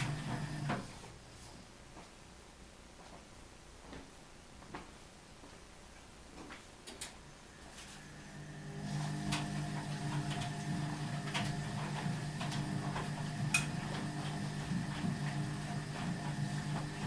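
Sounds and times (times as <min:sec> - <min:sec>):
washing machine motor hum: 0:00.0 - 0:01.2, 0:07.5 - 0:17.0.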